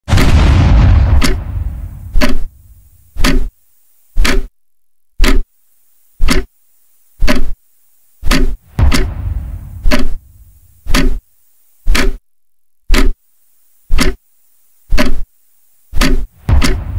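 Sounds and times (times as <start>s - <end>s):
boom rumble: 0.1s - 2.8s, 8.7s - 10.4s, 16.4s - 16.9s
countdown ticks: 1.1s - 1.6s, 2.2s - 2.5s, 3.2s - 3.5s, 8.3s - 10.2s, 10.9s - 11.2s, 11.9s - 12.2s, 14.0s - 14.2s, 16.0s - 16.9s.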